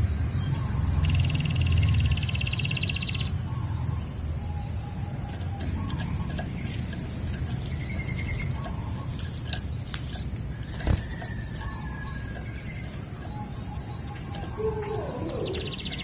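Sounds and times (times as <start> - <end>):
high insect-like whine: 0.0 - 16.0
bird calling high notes: 13.2 - 16.0.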